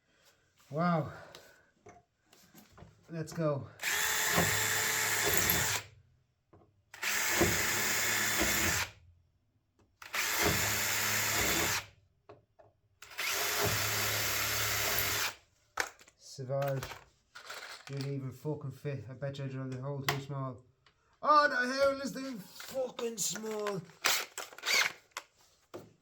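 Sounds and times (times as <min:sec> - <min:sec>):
power drill drilling: 0:03.8 - 0:05.8, 0:07.0 - 0:08.9, 0:10.1 - 0:11.9, 0:13.0 - 0:15.4, 0:24.0 - 0:25.0.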